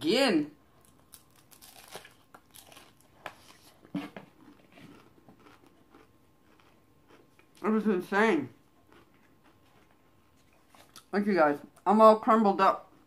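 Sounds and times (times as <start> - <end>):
person chewing crunchy food: 0.7 - 7.7, 8.6 - 11.1.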